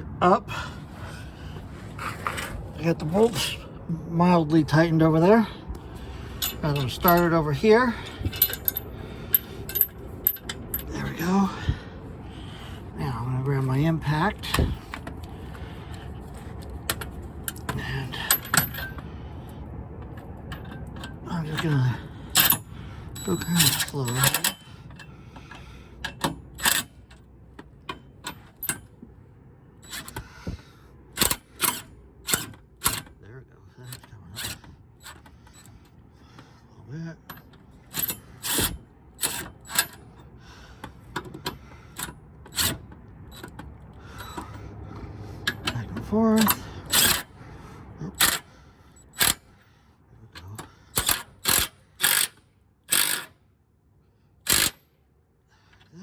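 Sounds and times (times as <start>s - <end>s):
impact wrench bursts: 37.8s - 40.1s, 46.4s - 47.3s, 48.1s - 49.5s, 50.9s - 53.3s, 54.4s - 54.8s.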